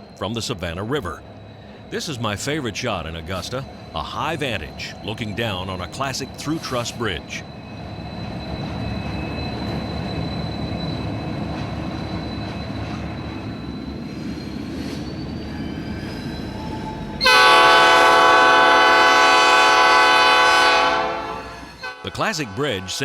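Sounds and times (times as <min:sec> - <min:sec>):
train rumbling across bridge: 0:00.0 - 0:22.9
locomotive air horn chord: 0:17.2 - 0:23.0.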